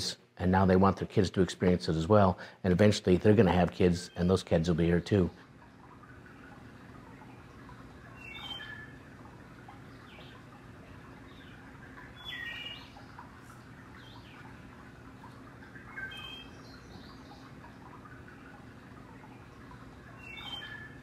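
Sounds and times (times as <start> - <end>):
faint low hum: 0.0 - 21.0
bird whistled calls: 8.2 - 9.0, 16.0 - 16.7, 20.2 - 21.0.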